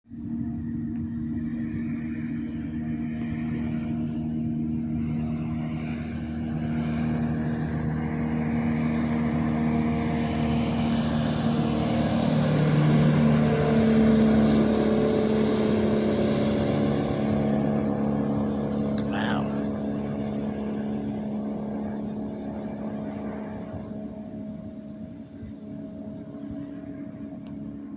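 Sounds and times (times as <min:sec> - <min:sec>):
motorboat engine passing: 0:00.1 - 0:27.9.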